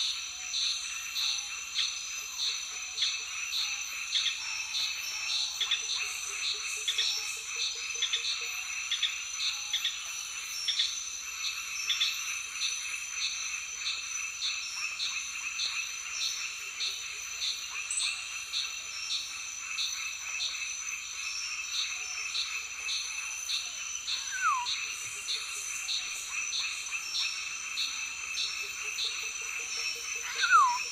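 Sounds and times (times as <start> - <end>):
insects buzzing: 10.4 - 30.9
pulsing frog call: 24.1 - 25.3, 29.9 - 30.9.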